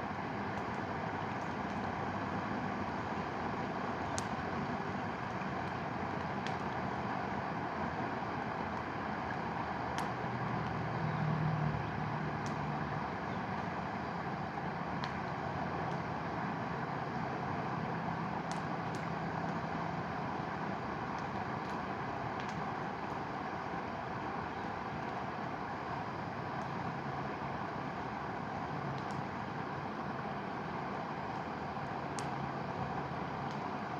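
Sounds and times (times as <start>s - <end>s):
campfire pops and cracks: 0.5s - 2.0s, 2.9s - 7.0s, 8.7s - 10.8s, 14.9s - 16.2s, 18.2s - 20.0s, 20.9s - 23.3s, 28.9s - 29.6s, 31.2s - 33.9s.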